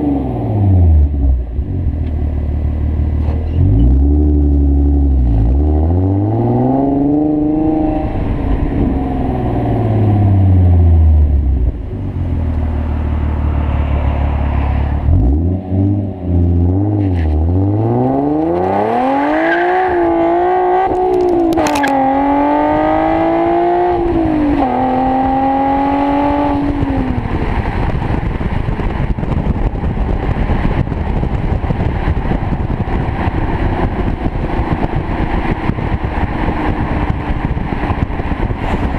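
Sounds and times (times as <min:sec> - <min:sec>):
car engine revving: 0:00.0 - 0:38.9
car engine idling: 0:08.0 - 0:15.1.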